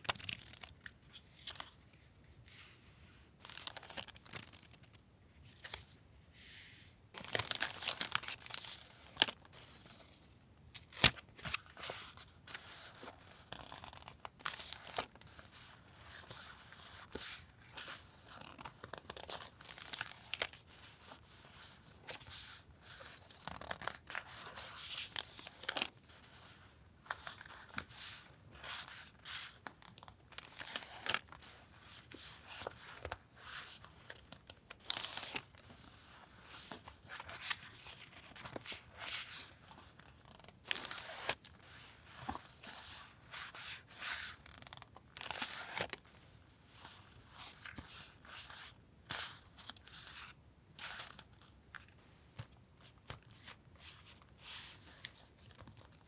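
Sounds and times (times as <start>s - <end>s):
paper crinkling: 7.2s - 10.2s.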